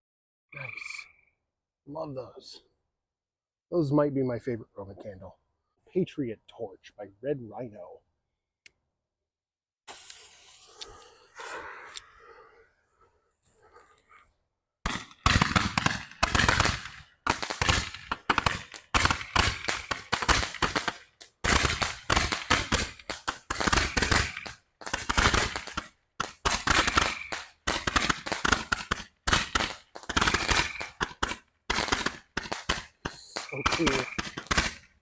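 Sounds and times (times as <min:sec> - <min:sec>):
firework crackling: 0:09.9 - 0:12.2, 0:14.9 - 0:35.0.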